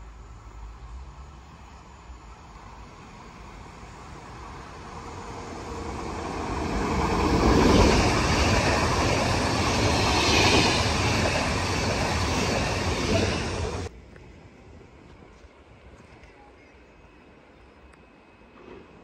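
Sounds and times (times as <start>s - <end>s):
train wheels rushing on rails: 0.8s - 13.9s.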